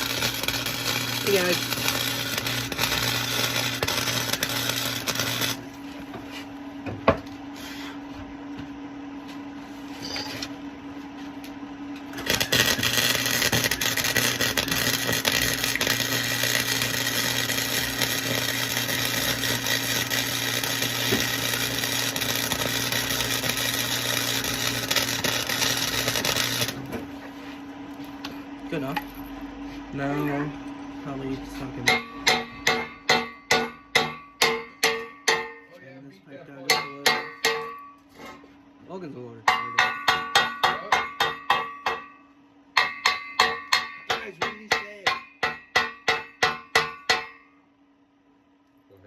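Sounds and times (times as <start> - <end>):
arc welding crackling: 0.0 - 6.1, 11.3 - 27.3.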